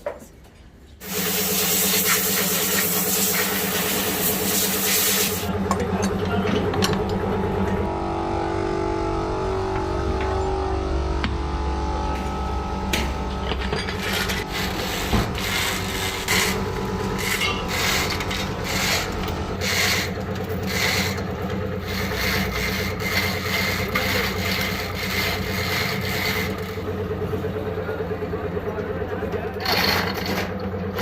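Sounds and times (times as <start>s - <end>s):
steady hum: 1.0s - 29.6s
hand tool scraping metal: 13.6s - 21.2s, 21.8s - 26.6s.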